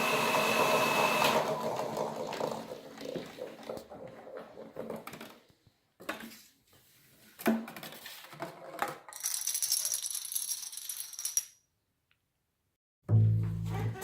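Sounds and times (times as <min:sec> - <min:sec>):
dominoes toppling: 0:09.2 - 0:11.5.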